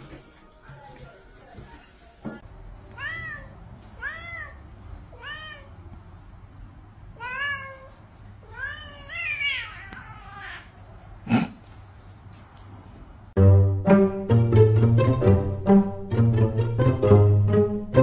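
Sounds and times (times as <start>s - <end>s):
cat meowing: 2.9s - 5.8s, 7.2s - 10.9s.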